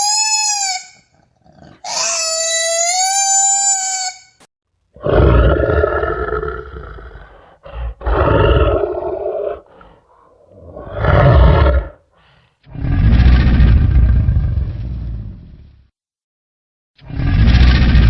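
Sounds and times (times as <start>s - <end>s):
deep raspy animal roars: 5.0s - 12.0s, 12.7s - 15.7s, 17.0s - 18.0s.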